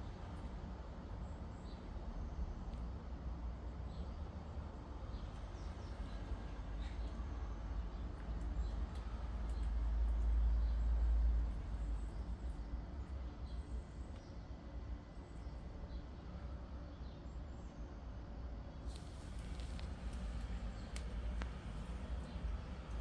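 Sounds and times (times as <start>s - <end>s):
cat chewing grass: 18.9s - 23.0s.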